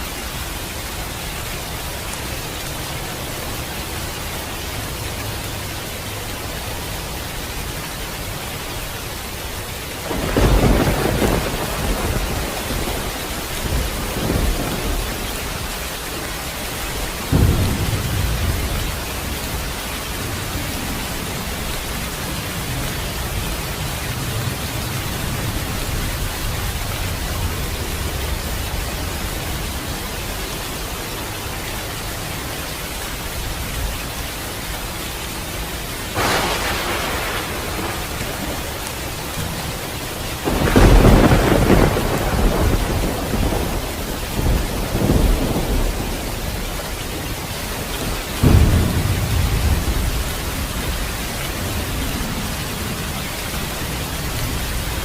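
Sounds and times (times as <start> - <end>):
rain falling: 0.0 - 55.0
thunder: 10.0 - 15.8, 16.9 - 21.9, 36.1 - 46.9, 47.8 - 52.8.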